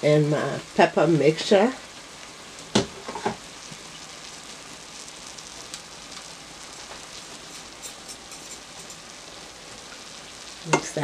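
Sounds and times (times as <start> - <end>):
cabbage sizzling in oil: 0.0 - 11.0.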